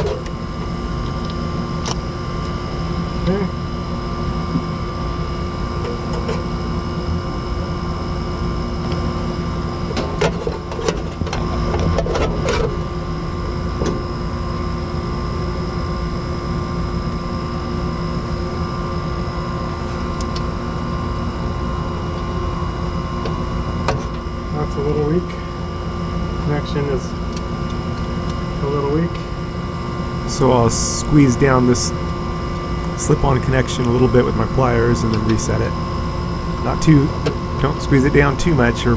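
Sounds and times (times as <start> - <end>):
machine hum: 30.0 - 38.9.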